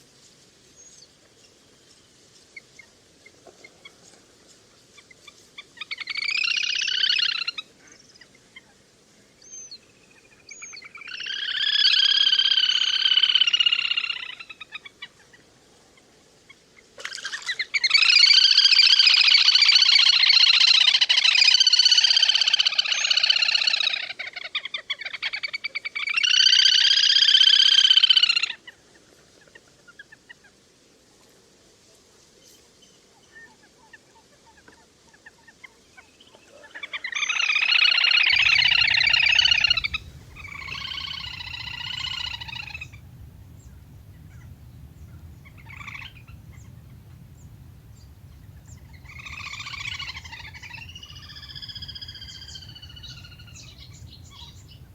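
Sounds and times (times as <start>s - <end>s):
bird high rapid trills: 38.3s - 54.9s.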